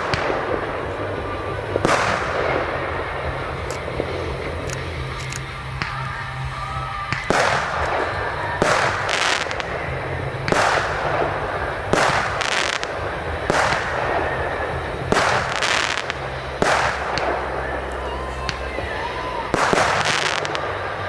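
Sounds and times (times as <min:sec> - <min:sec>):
fireworks banging: 0:00.0 - 0:21.0
fireworks hissing: 0:00.0 - 0:21.0.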